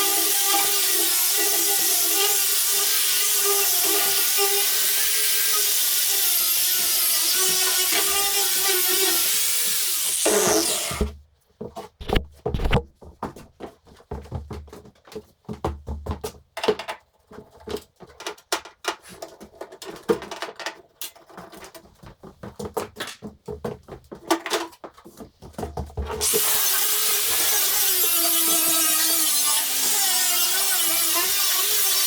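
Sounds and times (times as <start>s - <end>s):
power tool whining: 0.0s - 11.1s, 26.2s - 32.0s.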